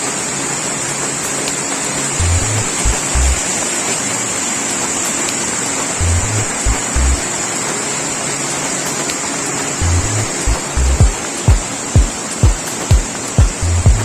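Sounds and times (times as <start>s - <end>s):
waterfall roaring: 0.0s - 14.0s
deep bass notes: 2.2s - 3.4s, 6.0s - 7.2s, 9.8s - 11.7s, 13.5s - 14.0s.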